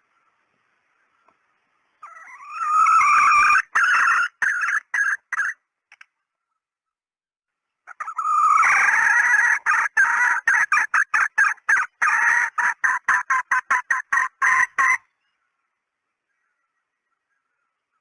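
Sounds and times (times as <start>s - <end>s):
junglefowl hen calling: 2.0s - 5.7s, 7.9s - 15.6s.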